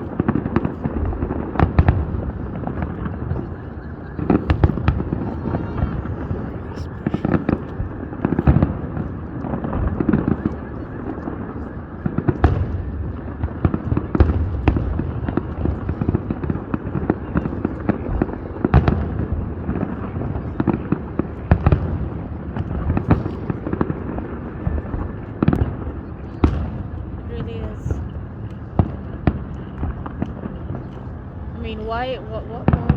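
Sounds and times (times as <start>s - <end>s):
fireworks booms and cracks: 0.0s - 32.9s
fireworks rumbling: 0.0s - 32.9s.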